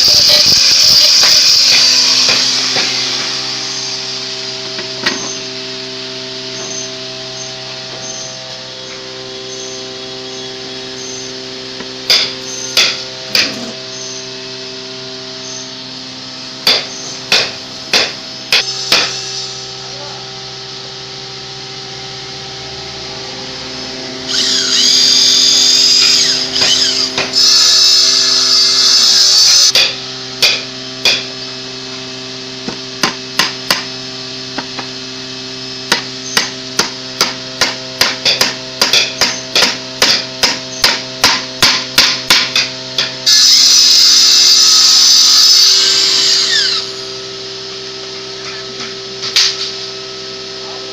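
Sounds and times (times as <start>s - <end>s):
power tool whining: 0.0s - 50.6s
steady hum: 0.0s - 50.9s
hammer striking wood: 11.8s - 13.6s, 16.6s - 19.2s, 29.7s - 31.3s, 32.6s - 33.9s, 35.9s - 43.1s.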